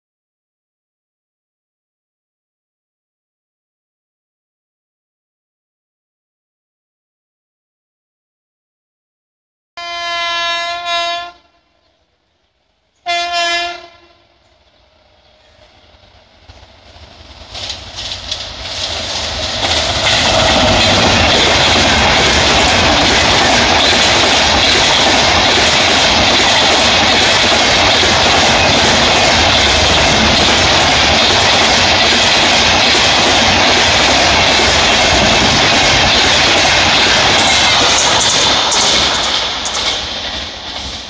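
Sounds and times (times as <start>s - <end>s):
locomotive air horn blasts: 9.8s - 11.8s, 13.0s - 14.4s
train passing with loud roar: 9.8s - 41.0s
wheels clicking over rail joints: 15.4s - 41.0s.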